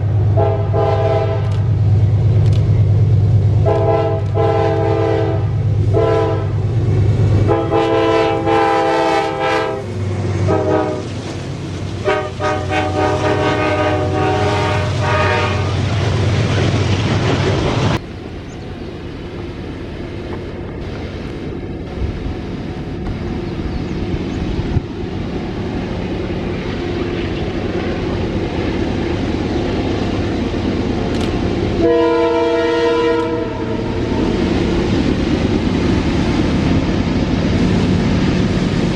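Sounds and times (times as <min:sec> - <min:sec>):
freight train rumbling on rails: 0:00.0 - 0:38.9
locomotive engine rumble: 0:00.0 - 0:38.9
locomotive air horn blasts: 0:00.3 - 0:01.6, 0:03.6 - 0:06.6, 0:07.4 - 0:11.1, 0:12.0 - 0:16.0, 0:31.8 - 0:34.2.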